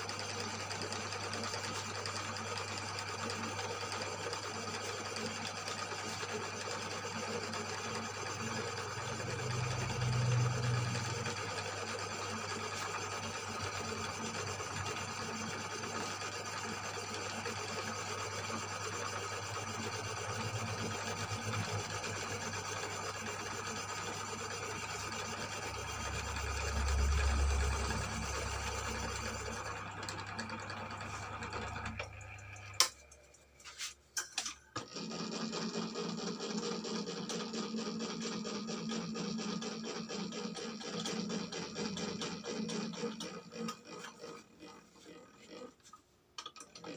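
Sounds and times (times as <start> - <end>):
cylinder boring machine running: 0.0 - 33.0.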